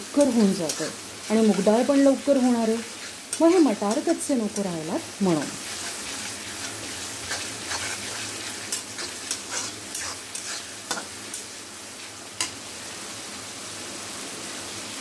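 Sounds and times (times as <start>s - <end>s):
vegetables sizzling in oil: 0.0s - 15.0s
metal spoon scraping a pan: 0.1s - 4.2s, 5.4s - 11.5s.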